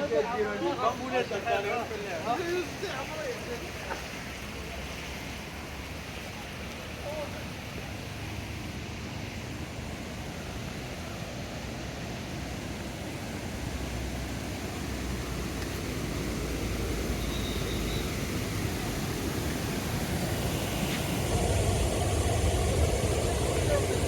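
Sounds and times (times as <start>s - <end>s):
vehicle engine rumble: 2.6s - 24.0s.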